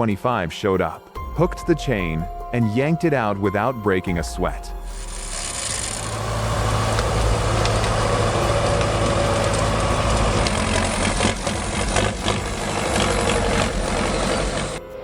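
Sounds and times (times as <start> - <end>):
diesel tractor engine under load: 5.0 - 14.8.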